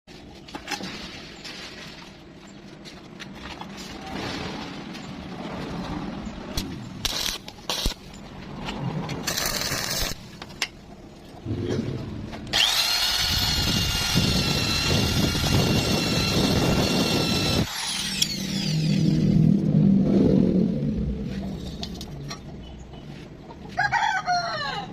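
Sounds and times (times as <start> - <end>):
power tool whining: 12.5 - 19.5.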